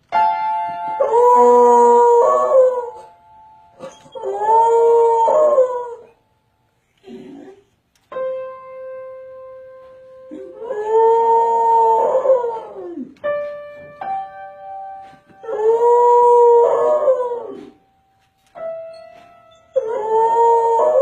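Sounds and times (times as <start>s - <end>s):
piano notes ringing: 0.0s - 6.7s, 8.1s - 21.0s
dog howling: 15.4s - 17.8s, 19.7s - 21.0s.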